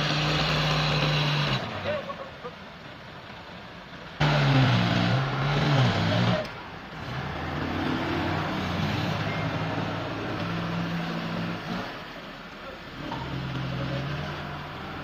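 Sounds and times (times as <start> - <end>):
engine revving hard: 0.0 - 2.0, 4.2 - 12.1, 13.0 - 15.0.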